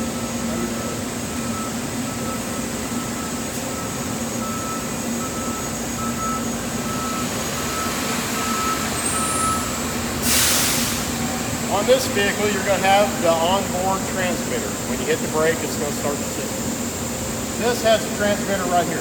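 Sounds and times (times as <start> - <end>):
backup alarm beeping: 0.0 - 9.9
truck engine running: 11.0 - 19.0.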